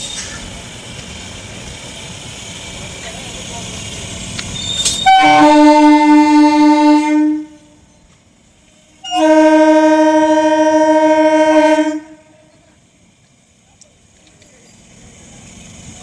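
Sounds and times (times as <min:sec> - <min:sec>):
train air horn blasts: 0:05.0 - 0:07.8, 0:09.0 - 0:12.5.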